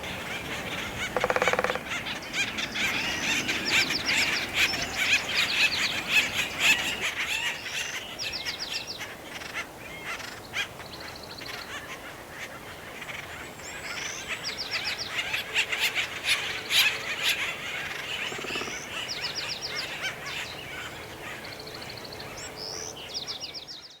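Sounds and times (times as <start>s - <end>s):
woodpeckers calling harshly: 0.0s - 7.8s, 16.4s - 19.4s
woodpecker tapping: 0.1s - 2.2s, 18.3s - 18.8s.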